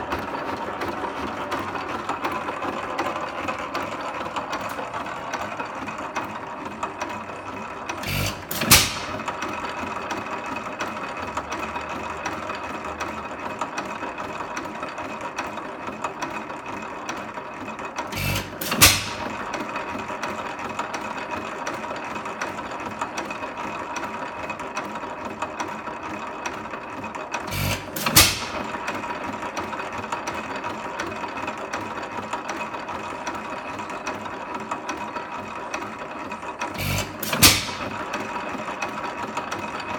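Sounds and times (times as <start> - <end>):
engine mechanical clatter: 0.0 - 39.9
engine firing bangs: 8.0 - 9.5, 18.2 - 19.6, 27.5 - 29.0, 36.8 - 38.2.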